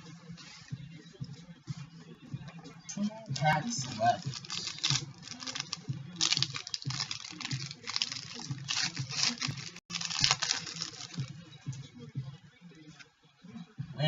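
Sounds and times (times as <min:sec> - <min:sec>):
wrappers crinkling: 0:03.4 - 0:11.3.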